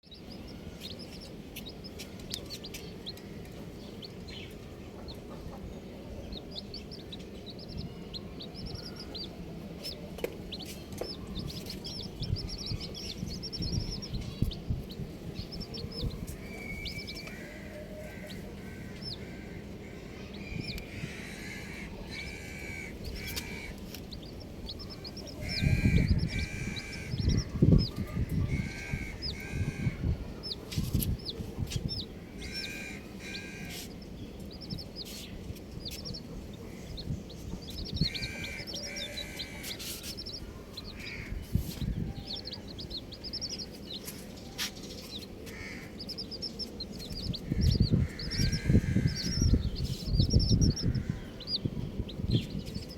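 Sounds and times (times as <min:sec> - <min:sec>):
baby chicks peeping: 0:00.0 - 0:52.9.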